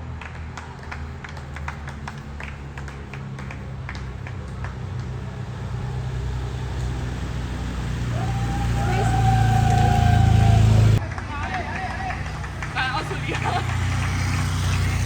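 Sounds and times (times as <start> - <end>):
vehicle engine hum approaching: 0.0 - 15.0.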